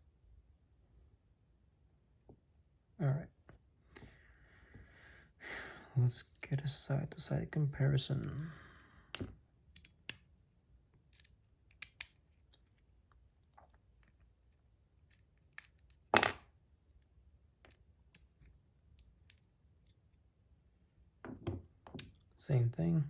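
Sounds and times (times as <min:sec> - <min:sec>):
metal top knocking on desk: 0:21.2 - 0:21.6.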